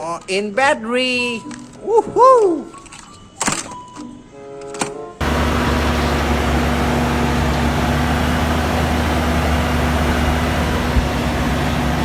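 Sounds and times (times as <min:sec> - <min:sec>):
engine humming with steady tone: 0:05.2 - 0:12.0.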